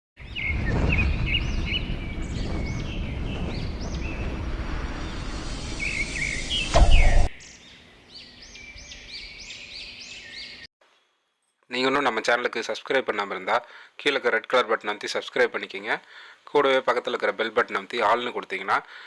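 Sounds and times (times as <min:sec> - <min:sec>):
small birds chirping: 0:00.2 - 0:11.1
loud thump: 0:00.5 - 0:07.4
steady rushing noise: 0:00.5 - 0:07.4.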